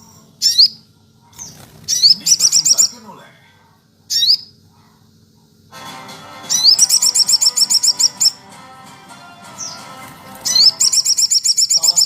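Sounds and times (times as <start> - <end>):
songbird singing: 0.0 - 3.1, 6.5 - 8.5, 9.1 - 12.0
other bird calls: 9.4 - 12.0.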